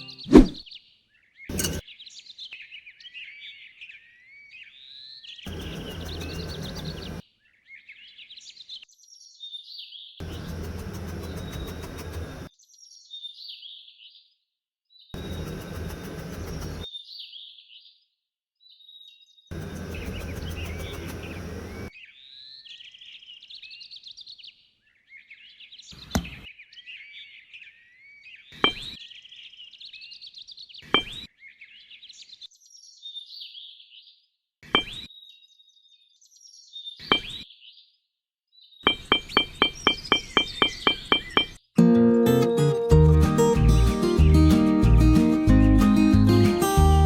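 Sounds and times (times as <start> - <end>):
small birds chirping: 0.0 - 14.3, 14.9 - 41.8
sharp knocks: 38.9 - 41.6.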